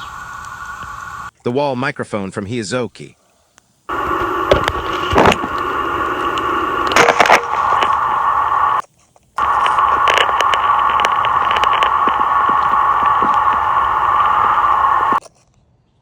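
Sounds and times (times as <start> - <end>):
water leak hiss with droning tone: 0.0 - 1.3, 3.8 - 8.8, 9.4 - 15.2
microphone handling crackle: 3.9 - 8.8, 9.4 - 15.2.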